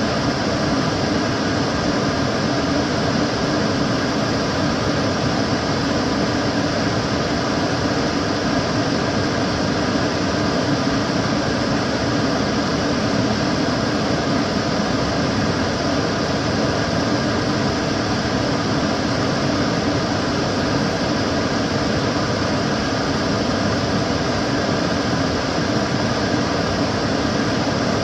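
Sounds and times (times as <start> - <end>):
extractor fan running: 0.0 - 28.0.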